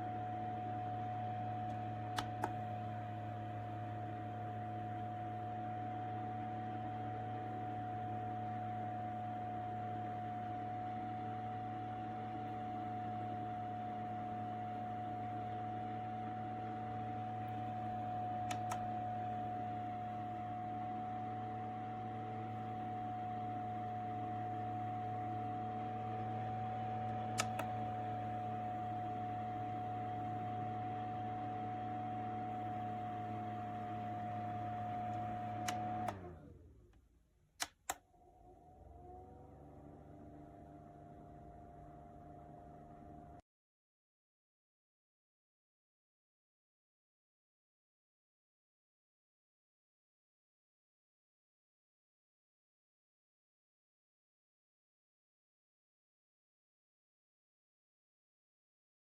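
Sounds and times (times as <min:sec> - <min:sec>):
fan whine: 0:00.0 - 0:36.7
switch clicks: 0:02.2 - 0:02.7, 0:18.4 - 0:18.9, 0:27.4 - 0:27.8, 0:35.1 - 0:36.2, 0:37.6 - 0:38.0
quick clicks: 0:27.4 - 0:27.8, 0:37.6 - 0:38.0.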